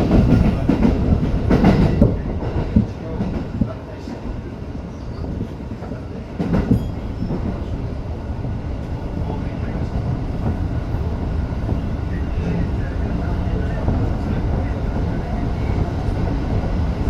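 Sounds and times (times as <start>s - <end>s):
train rumbling at speed: 0.0s - 17.0s.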